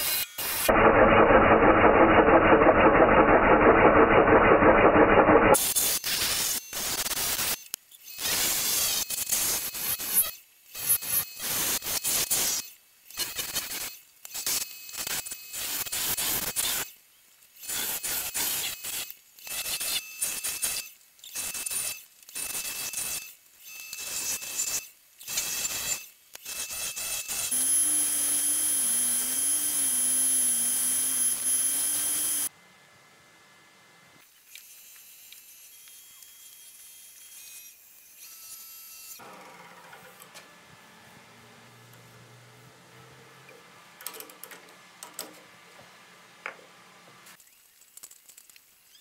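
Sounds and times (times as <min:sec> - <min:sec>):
scraper rasping on wood lathe: 0:24.0 - 0:32.5
sanding pad whirring: 0:26.6 - 0:32.5
lathe humming: 0:27.6 - 0:32.5.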